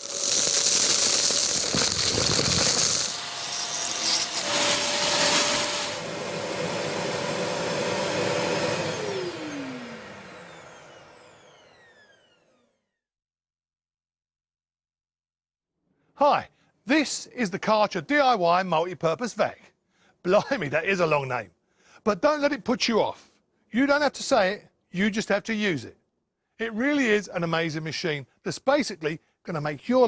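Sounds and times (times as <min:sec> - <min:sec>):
vacuum cleaner running: 0:00.0 - 0:12.9.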